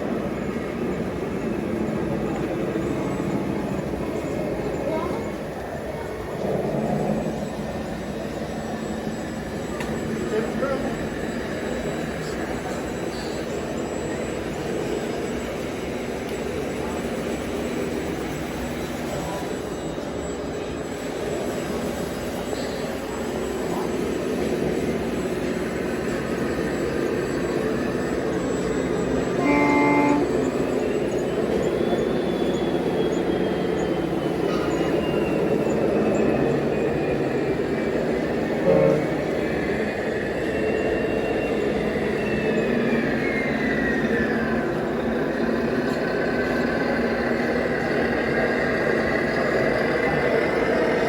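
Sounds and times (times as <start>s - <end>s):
model truck motor whining: 23.2s - 51.0s
short horn toot: 29.4s - 30.4s, 38.6s - 39.2s.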